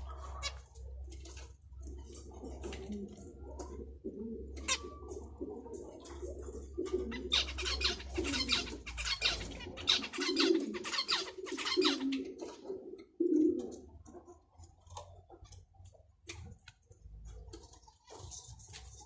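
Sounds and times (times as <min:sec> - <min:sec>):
low cooing: 0:02.4 - 0:08.8
finches chirping: 0:07.1 - 0:12.2.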